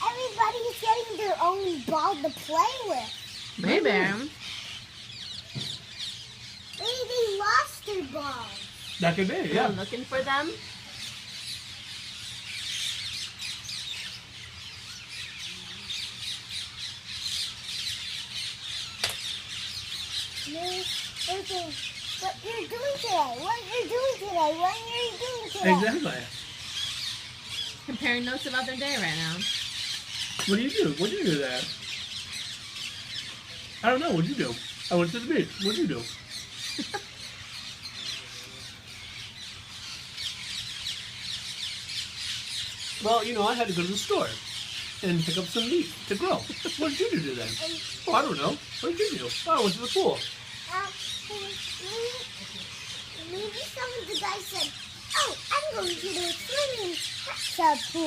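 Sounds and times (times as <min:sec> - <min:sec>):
parrots squawking and chattering: 0:00.0 - 0:58.0
sharp click: 0:19.0 - 0:19.2.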